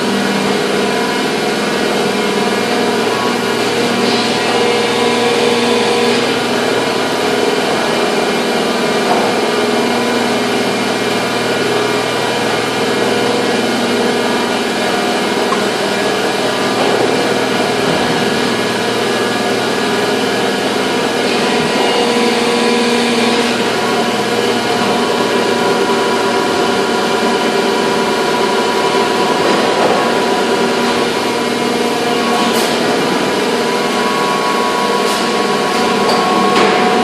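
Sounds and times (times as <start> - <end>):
factory machinery drone: 0.0 - 37.0.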